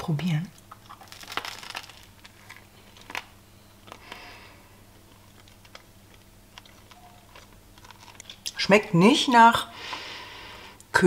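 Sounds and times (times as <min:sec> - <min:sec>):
person chewing crusty bread: 0:00.6 - 0:08.6.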